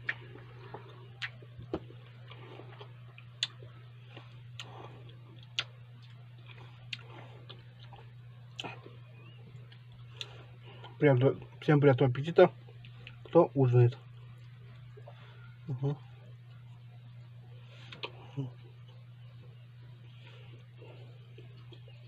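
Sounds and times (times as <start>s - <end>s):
person chewing food: 0.0s - 11.0s
steady low hum: 0.0s - 22.0s.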